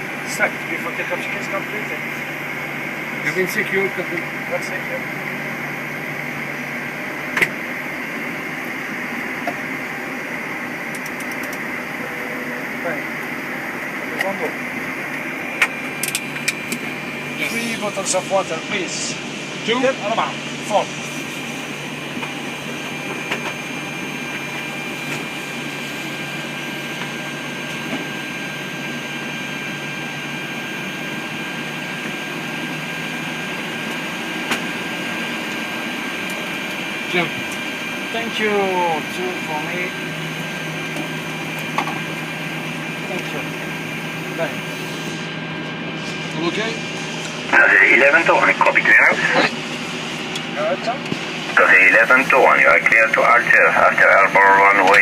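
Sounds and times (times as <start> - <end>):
jet engines idling: 0.0 - 55.0
air conditioning rush: 46.0 - 55.0
faint steady whine: 46.4 - 55.0.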